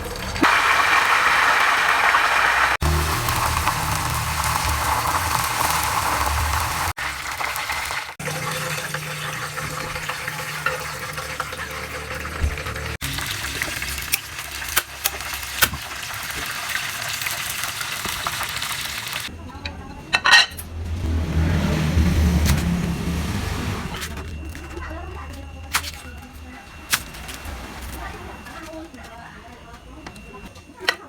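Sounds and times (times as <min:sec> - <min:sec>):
food sizzling in hot oil: 0:00.0 - 0:19.3.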